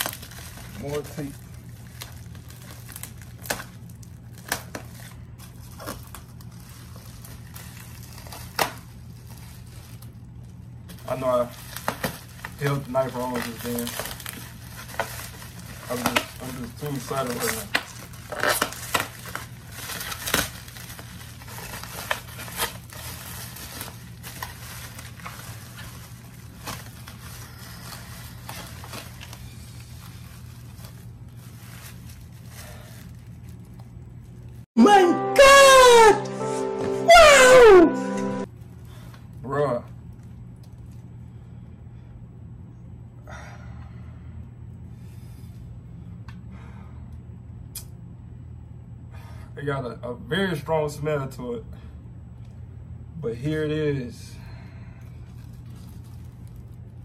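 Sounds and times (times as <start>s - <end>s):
plastic crinkles and snaps: 0.0s - 34.6s, 38.6s - 41.1s, 55.0s - 57.0s.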